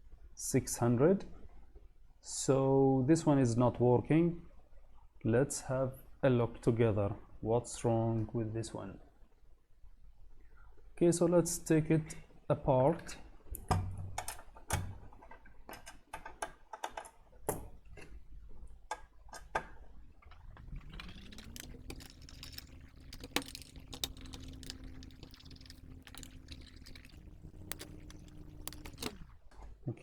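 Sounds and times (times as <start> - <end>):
electric screwdriver motor: 20.6 - 29.4
metal case and tools handled: 20.6 - 29.4.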